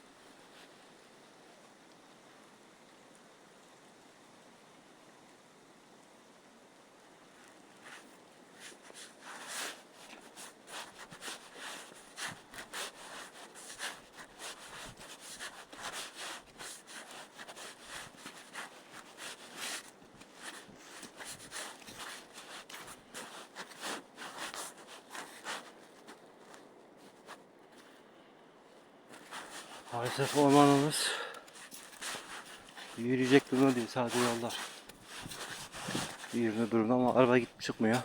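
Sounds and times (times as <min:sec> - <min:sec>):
footsteps on wet snow: 0:07.8 - 0:28.0, 0:28.7 - 0:38.0.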